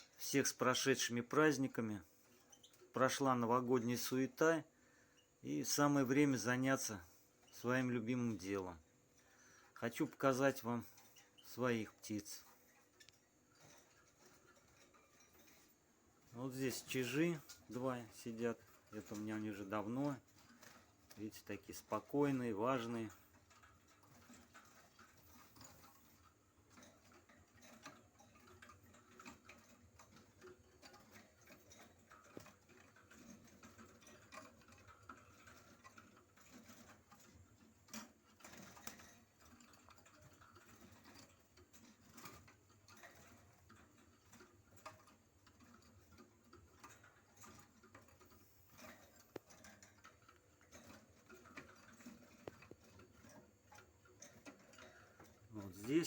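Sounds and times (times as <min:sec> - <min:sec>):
faint small clicks and ticks: 0:00.0 - 0:56.0.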